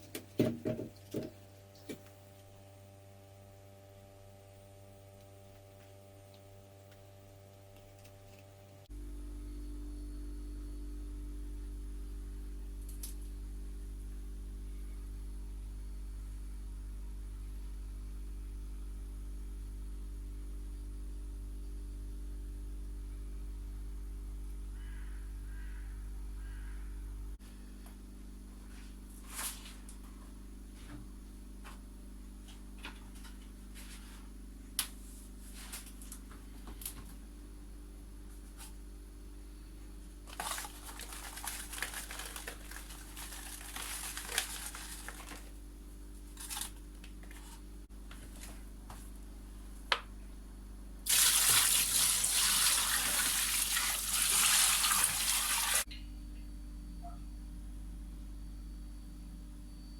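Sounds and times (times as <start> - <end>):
water running from a tap: 51.1 - 55.8.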